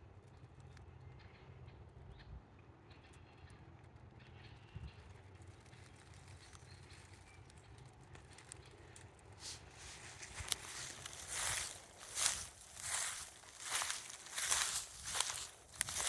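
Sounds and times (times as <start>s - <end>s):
footstep in dry leaves: 9.3s - 16.0s.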